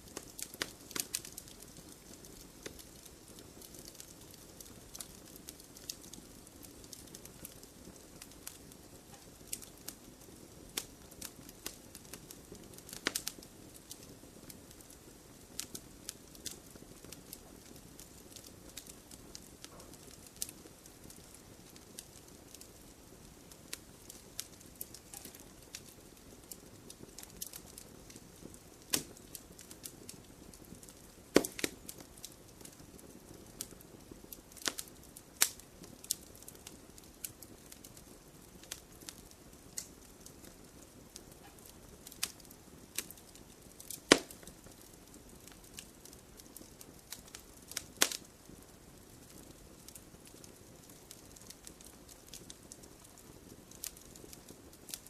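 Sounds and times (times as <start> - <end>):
campfire crackling and popping: 0.0 - 55.0.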